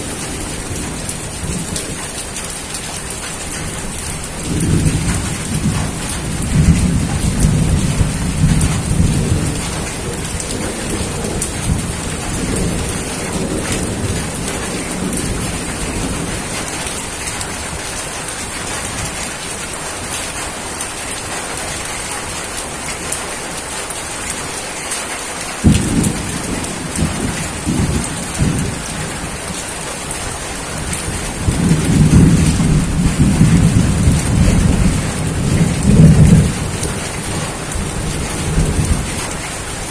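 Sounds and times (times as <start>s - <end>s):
steady rain: 0.0s - 39.9s
thunder rumbling: 3.4s - 19.4s, 25.6s - 39.9s
sharp thunder clap: 25.6s - 29.6s, 30.8s - 39.2s.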